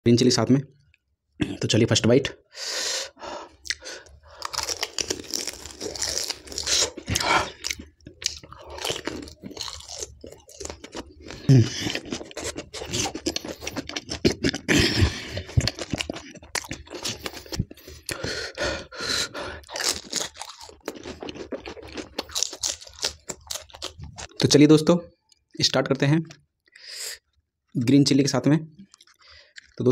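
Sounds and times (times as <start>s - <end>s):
crunching and wet chewing: 3.6s - 24.4s, 28.8s - 29.8s.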